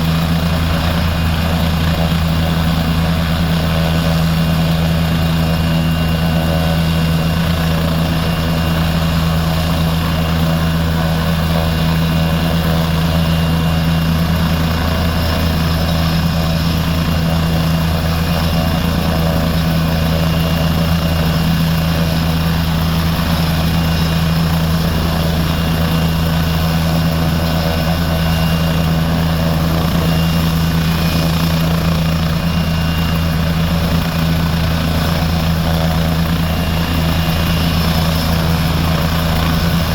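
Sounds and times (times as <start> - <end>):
helicopter rotor and turbine drone: 0.0 - 39.9.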